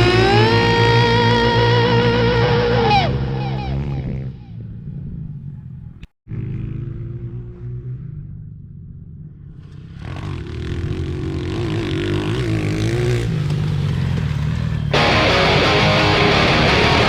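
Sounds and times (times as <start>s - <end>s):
guitar music: 0.0s - 4.1s, 14.9s - 17.0s
pit bike engine revving: 0.0s - 17.0s.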